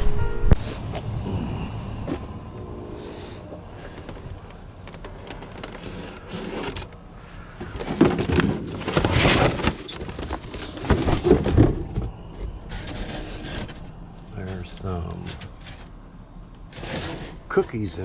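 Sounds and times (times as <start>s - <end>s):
rubbish rustling and clattering: 3.6s - 18.0s.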